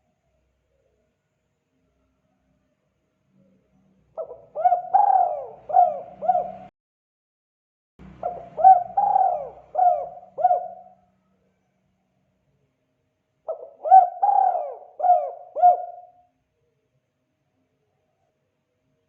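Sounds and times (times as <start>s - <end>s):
dove cooing: 4.2s - 6.7s, 8.2s - 11.0s, 13.5s - 16.2s.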